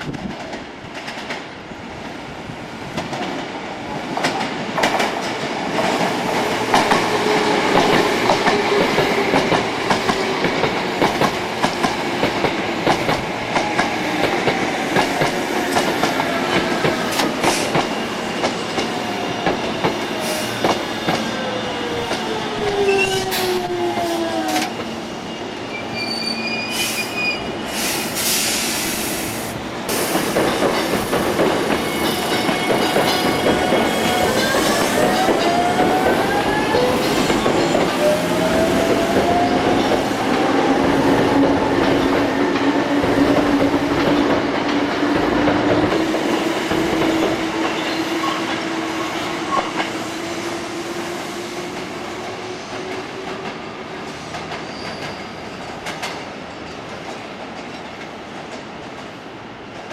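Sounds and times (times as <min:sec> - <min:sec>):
electric train rolling rumble: 0:00.0 - 0:59.9
high wheel squeal: 0:24.7 - 0:27.6.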